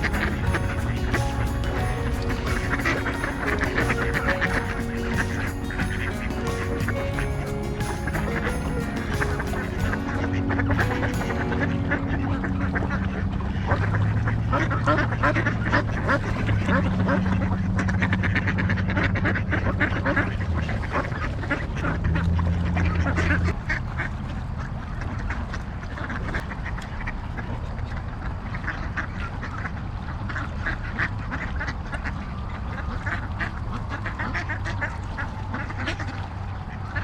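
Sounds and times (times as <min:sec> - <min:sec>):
low steady hum: 0:00.0 - 0:23.7
ducks quacking: 0:00.0 - 0:23.8.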